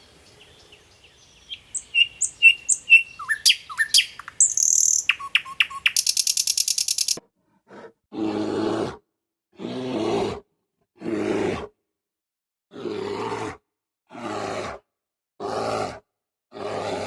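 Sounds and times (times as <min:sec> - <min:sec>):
bird chirping: 0:00.0 - 0:07.2.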